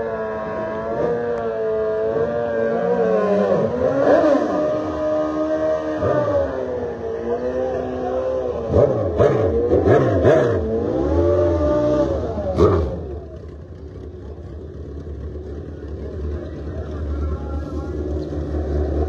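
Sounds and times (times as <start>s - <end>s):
engine rumble: 0.0s - 19.0s
racing engines revving: 0.0s - 19.0s.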